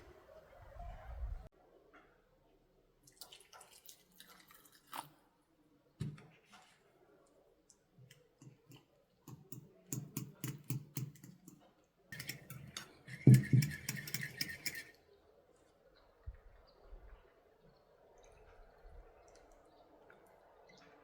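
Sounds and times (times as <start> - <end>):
sharp knocks and clicks: 8.4 - 11.6, 12.2 - 14.9.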